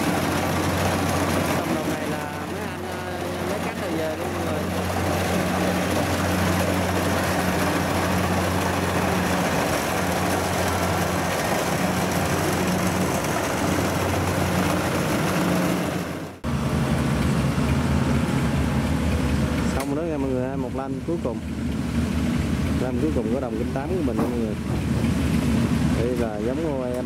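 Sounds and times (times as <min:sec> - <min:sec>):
threshing noise: 0:00.0 - 0:20.2
combine harvester engine droning: 0:00.0 - 0:27.0.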